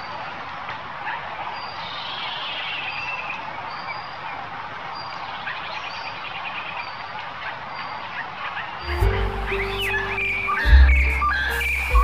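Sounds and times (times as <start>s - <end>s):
steady outdoor hiss: 0.0s - 12.0s
high bird chirps and calls: 5.0s - 12.0s
bird trill: 8.8s - 12.0s.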